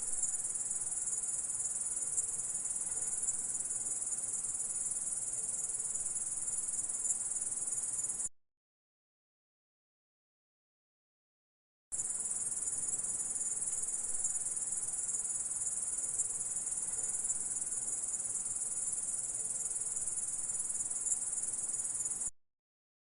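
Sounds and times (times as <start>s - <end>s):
grasshopper stridulating: 12.0s - 22.3s.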